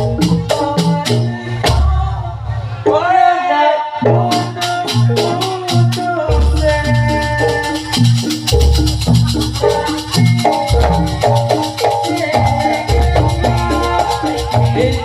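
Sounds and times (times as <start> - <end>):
gamelan-style music: 0.0 - 15.0
struck metal notes: 4.1 - 15.0
jingling rattle: 6.4 - 15.0.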